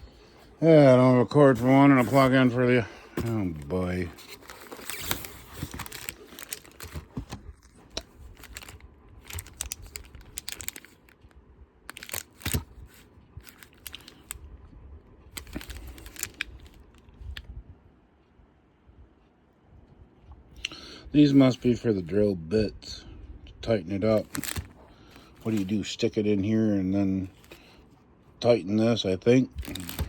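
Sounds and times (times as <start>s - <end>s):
packaging torn and crinkled: 1.6s - 11.3s, 11.9s - 14.4s, 15.3s - 17.0s, 24.1s - 25.8s, 29.5s - 30.0s.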